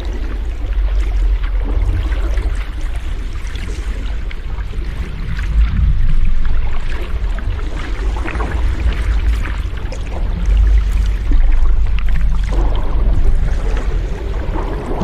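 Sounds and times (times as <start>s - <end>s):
ocean waves rushing: 12.5s - 15.0s.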